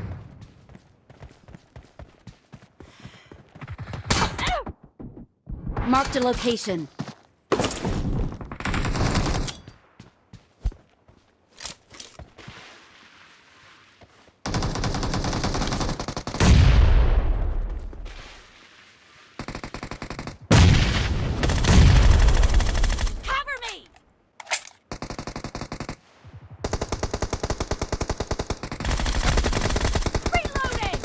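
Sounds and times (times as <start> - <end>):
video game automatic gunfire: 26.6 - 31.0.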